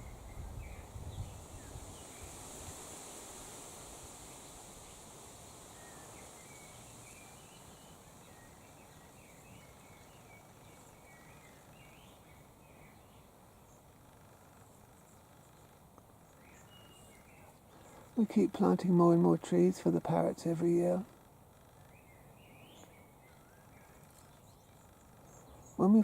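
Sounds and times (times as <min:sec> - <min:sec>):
low outdoor background noise: 0:00.0 - 0:26.0
distant birds chirping: 0:05.6 - 0:26.0.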